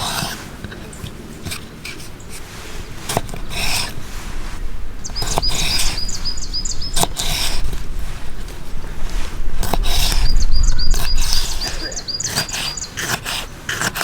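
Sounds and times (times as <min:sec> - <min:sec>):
rustling of gear: 0:00.0 - 0:13.8
small bird chirping: 0:00.8 - 0:13.5
low rumble: 0:02.2 - 0:12.3.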